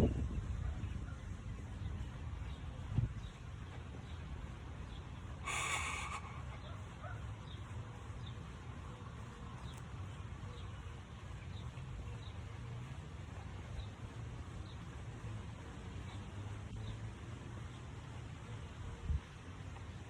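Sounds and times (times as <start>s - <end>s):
sharp exhale: 5.4s - 6.6s.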